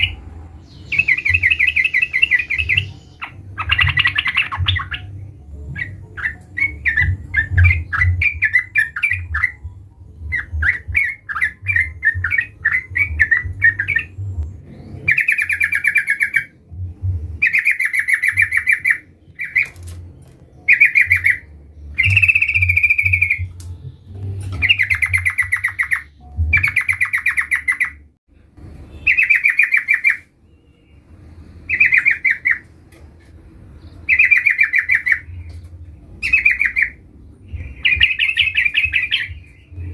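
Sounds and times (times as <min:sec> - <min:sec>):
bird chattering song: 0:00.0 - 0:16.6, 0:17.4 - 0:19.9, 0:20.5 - 0:28.1, 0:28.9 - 0:31.0, 0:31.7 - 0:32.7, 0:33.8 - 0:39.9.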